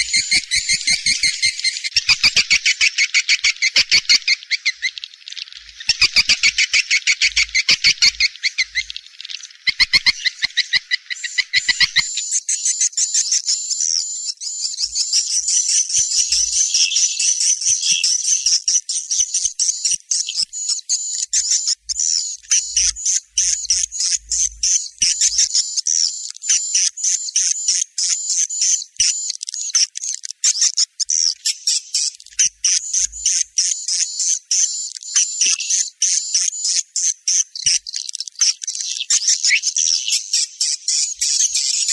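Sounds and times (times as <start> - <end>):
swiftlet chirping twitters: 0.0 - 5.0, 26.2 - 41.9.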